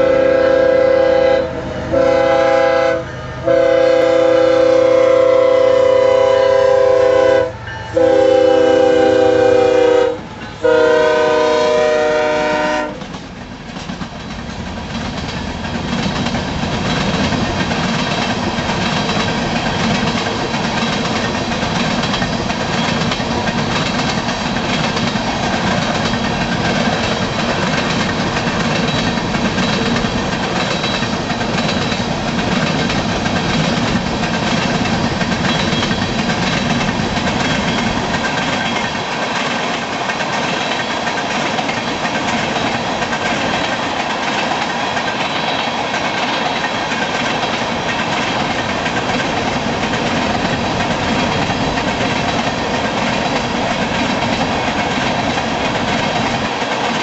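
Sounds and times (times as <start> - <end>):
locomotive air horn blasts: 0.0 - 13.0
train wheels rumbling on rails: 0.0 - 57.0.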